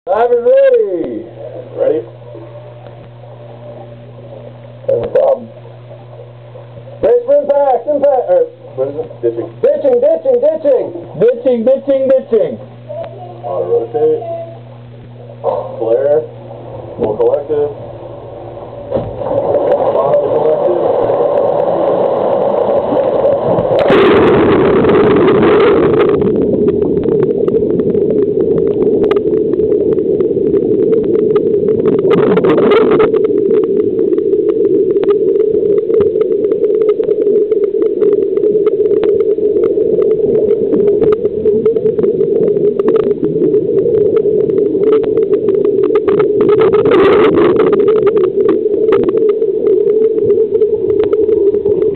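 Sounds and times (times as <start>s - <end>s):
water rushing and bubbling: 16.3s - 51.9s
small clicks: 28.6s - 30.0s, 44.1s - 49.4s.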